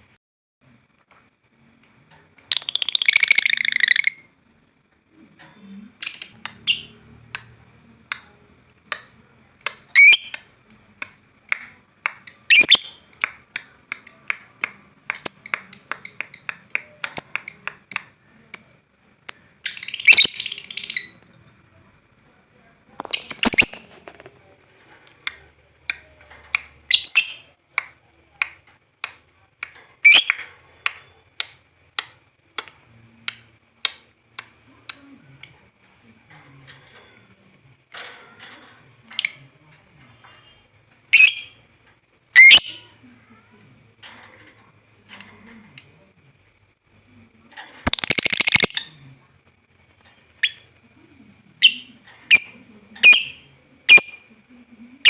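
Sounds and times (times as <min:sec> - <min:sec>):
bird chirping: 0:01.1 - 0:04.3, 0:09.6 - 0:11.6, 0:12.2 - 0:21.2, 0:23.0 - 0:24.0, 0:47.9 - 0:48.9
bird harsh chattering: 0:47.9 - 0:48.8.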